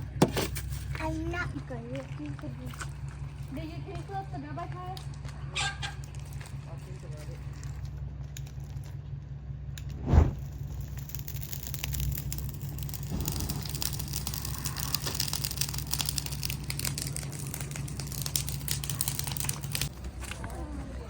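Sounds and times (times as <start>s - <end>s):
steady low rumble: 2.9s - 21.0s
crackling rustling noise: 9.9s - 21.0s.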